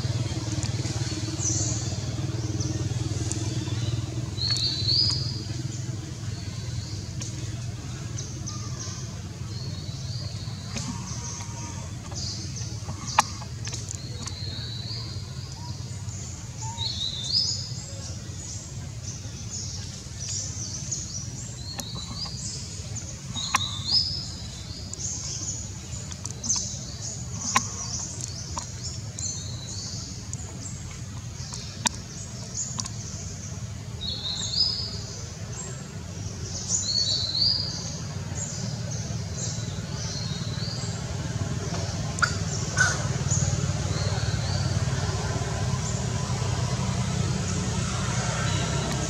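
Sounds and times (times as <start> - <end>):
birds chirping: 0.0 - 49.0
sharp clicks: 30.2 - 33.1.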